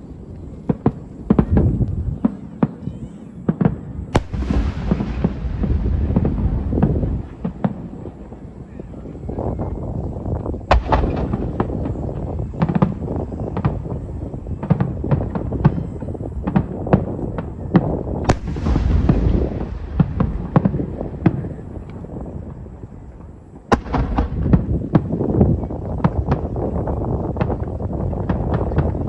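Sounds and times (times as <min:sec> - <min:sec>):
fireworks bursting: 0:00.0 - 0:29.0
low rumble: 0:04.2 - 0:08.2, 0:18.2 - 0:23.2.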